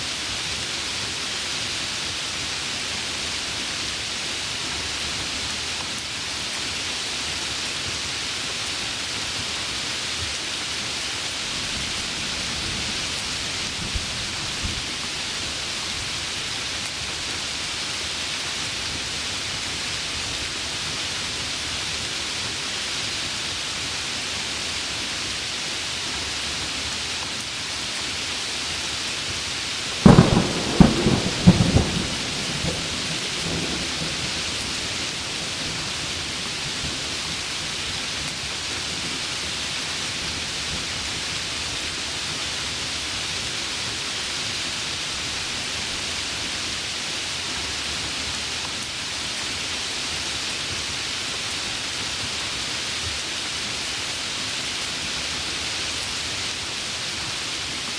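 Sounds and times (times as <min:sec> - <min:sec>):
heavy rain falling: 0:00.0 - 0:57.9
thunderclap cracking and rumbling: 0:30.0 - 0:35.9.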